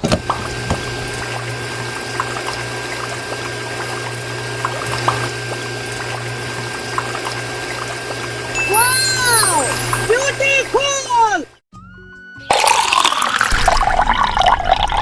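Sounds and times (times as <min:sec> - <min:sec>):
thin pump whine: 0:00.0 - 0:11.5
electric water pump humming: 0:00.0 - 0:11.6, 0:12.5 - 0:15.0
water pouring and splashing: 0:00.2 - 0:08.6, 0:12.5 - 0:15.0.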